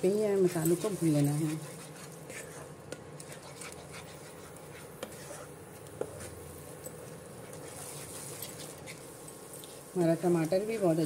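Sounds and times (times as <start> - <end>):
spatula stirring and scraping: 0.0 - 11.0
paste sizzling in oil: 7.4 - 11.0.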